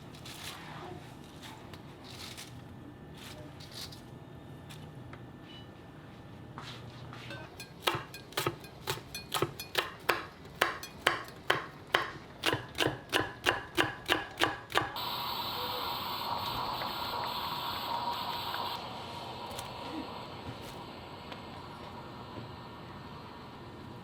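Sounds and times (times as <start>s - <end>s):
knife chopping on cutting board: 7.6s - 15.0s.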